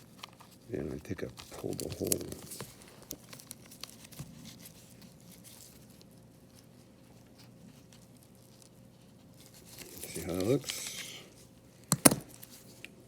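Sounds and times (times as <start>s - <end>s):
small hand tools handling: 0.0s - 4.7s, 9.4s - 13.0s
faint steady hum: 0.0s - 13.0s.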